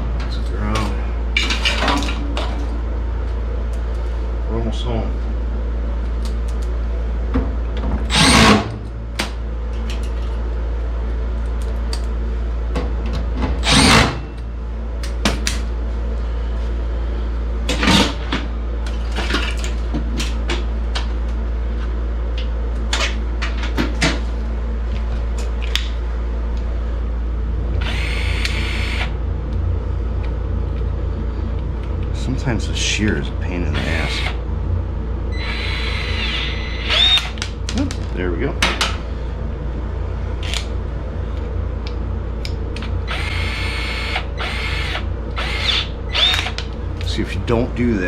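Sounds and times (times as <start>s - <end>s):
steady low hum: 0.0s - 48.0s
cordless power tool on sheet metal: 13.6s - 14.2s, 35.4s - 37.4s, 43.1s - 46.6s.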